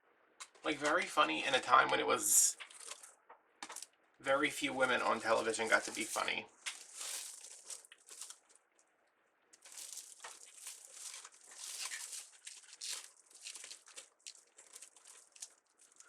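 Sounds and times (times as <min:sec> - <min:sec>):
plastic crinkling in a garbage bag: 0:02.6 - 0:03.9, 0:04.6 - 0:08.8, 0:09.6 - 0:16.0.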